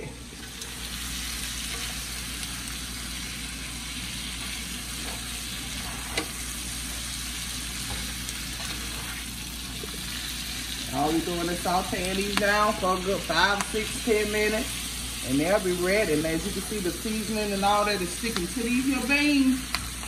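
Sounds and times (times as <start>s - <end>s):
green beans sizzling in butter: 0.0s - 20.0s.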